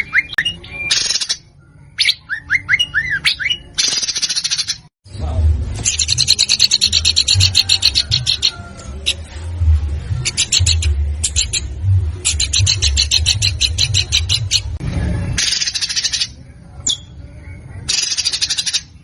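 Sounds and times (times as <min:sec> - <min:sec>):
low rumble: 0:05.1 - 0:15.4.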